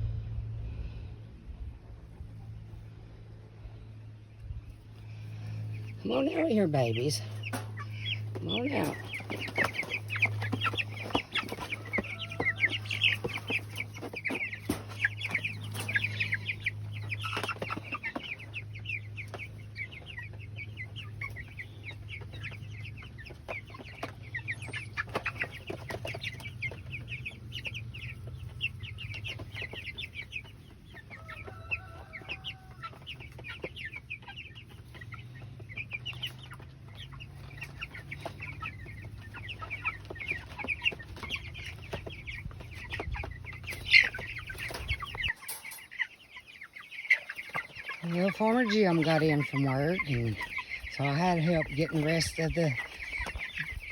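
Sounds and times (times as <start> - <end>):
steady low hum: 0.0 - 6.0
chicks peeping: 0.0 - 53.9.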